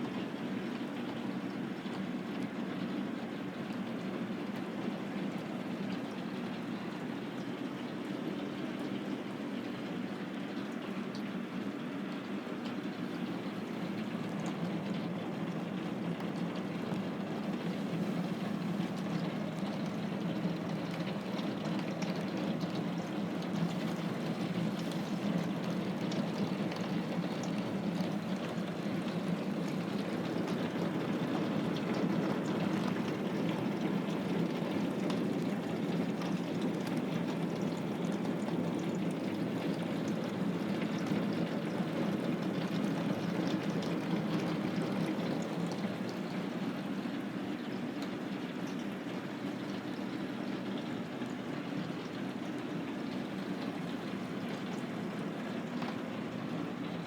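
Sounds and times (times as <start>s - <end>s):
running water rushing: 16.7s - 47.4s.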